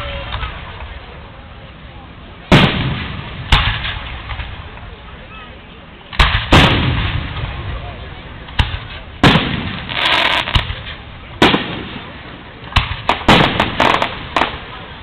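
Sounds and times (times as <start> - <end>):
firework shells booming: 2.5 - 4.8, 6.1 - 14.8.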